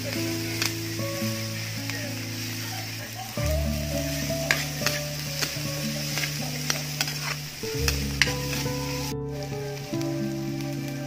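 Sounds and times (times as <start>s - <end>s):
onions sizzling in hot oil: 0.0s - 11.0s
wooden spatula scraping a pan: 4.0s - 9.2s.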